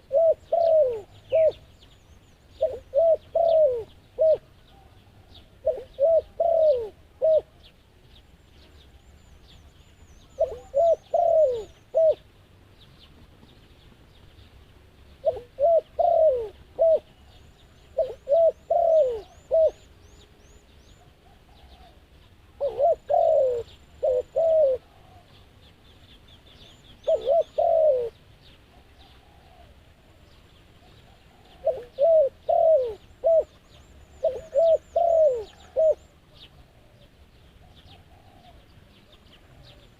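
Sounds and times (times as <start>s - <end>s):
doves cooing: 0.0s - 1.7s, 2.6s - 7.7s, 10.3s - 12.3s, 15.2s - 19.9s, 21.0s - 25.5s, 27.0s - 30.1s, 30.8s - 39.9s
small birds chirping: 0.0s - 39.9s.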